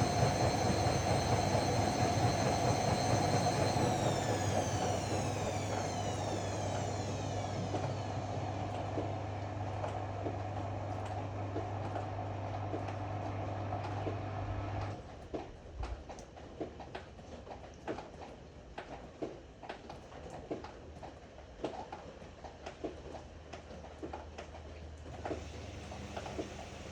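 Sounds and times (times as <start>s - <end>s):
washer drum motor winding down: 0.0s - 15.1s, 25.0s - 26.9s.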